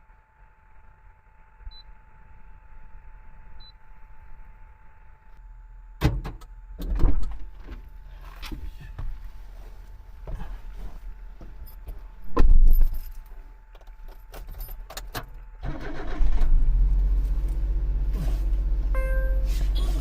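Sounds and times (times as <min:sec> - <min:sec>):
van engine starting and idling: 0:15.0 - 0:20.0.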